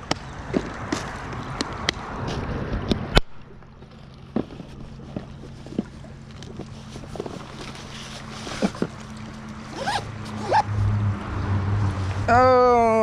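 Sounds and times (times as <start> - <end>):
fishing line zipping swishes: 9.6 - 10.9.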